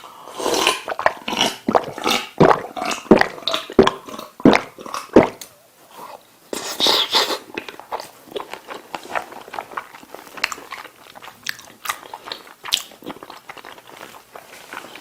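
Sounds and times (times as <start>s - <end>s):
chewing and biting food: 0.4s - 15.0s.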